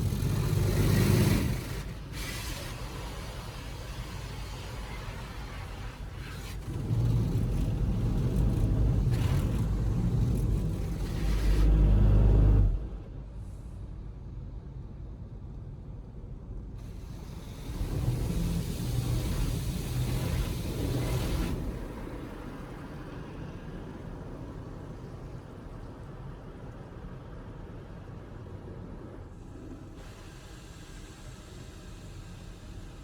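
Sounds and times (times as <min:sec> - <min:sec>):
car wash machinery rumbling: 0:00.0 - 0:13.2, 0:16.8 - 0:28.1.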